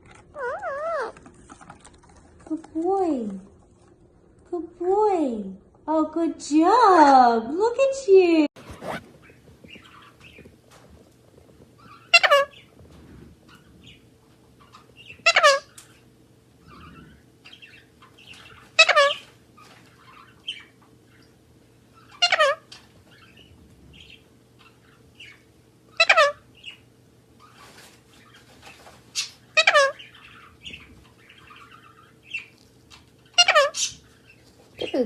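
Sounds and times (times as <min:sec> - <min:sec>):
parrot calling loudly: 0:00.3 - 0:01.2, 0:11.8 - 0:12.7, 0:14.7 - 0:15.8, 0:18.4 - 0:19.3, 0:22.0 - 0:23.3, 0:24.6 - 0:26.8, 0:29.2 - 0:30.5, 0:33.2 - 0:34.0.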